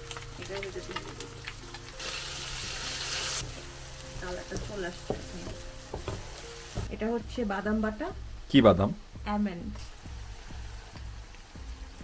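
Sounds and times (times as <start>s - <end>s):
onions frying in hot oil: 0.0s - 6.9s, 7.8s - 12.0s
wooden spatula stirring: 3.4s - 6.9s.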